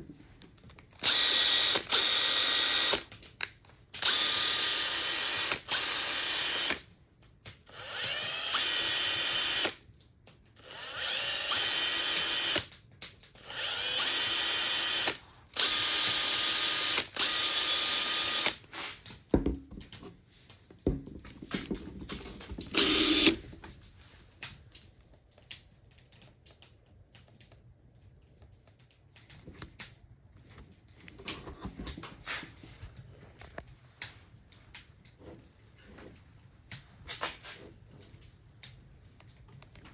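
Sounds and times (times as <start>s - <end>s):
impact driver bursts: 1.0s - 3.1s, 4.0s - 6.8s, 7.7s - 9.8s, 10.6s - 12.7s, 13.4s - 18.6s, 22.6s - 23.6s
tool handling clicks and knocks: 15.7s - 23.8s.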